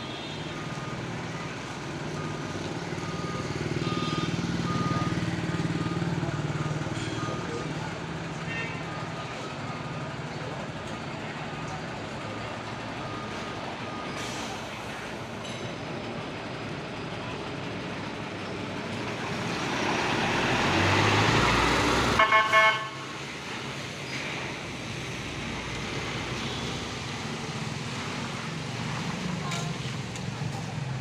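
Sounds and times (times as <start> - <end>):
street traffic: 0.0 - 31.0
vehicle horn toots: 22.2 - 23.2.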